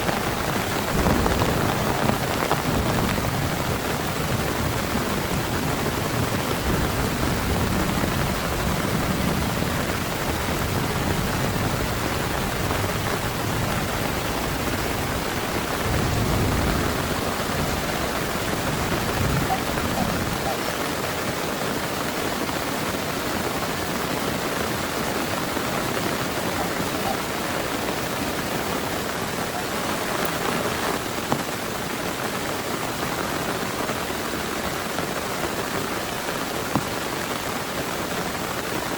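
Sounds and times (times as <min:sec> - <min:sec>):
thunder rumbles: 0:00.0 - 0:21.8
heavy rain falling: 0:00.0 - 0:38.9.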